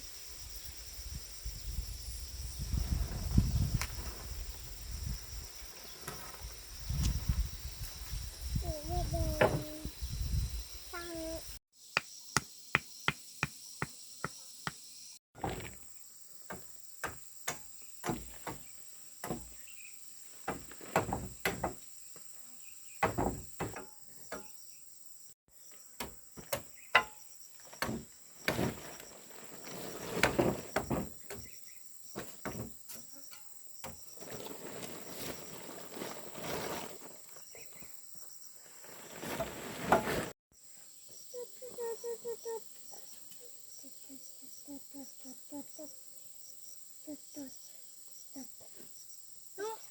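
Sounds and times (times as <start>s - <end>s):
tools knocking on bamboo and wood: 16.5s - 19.6s, 20.5s - 21.8s, 23.0s - 24.5s, 26.0s - 27.2s.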